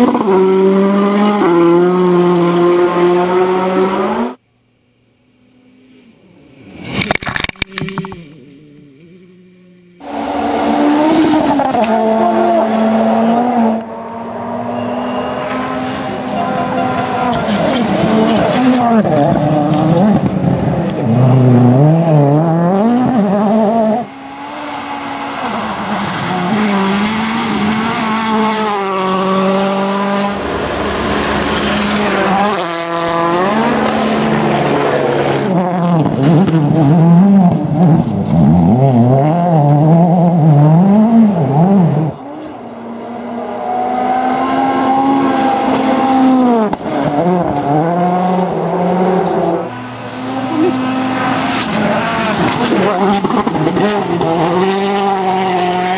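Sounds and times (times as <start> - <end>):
rally car engines revving hard: 0.0 - 4.4, 7.0 - 55.9.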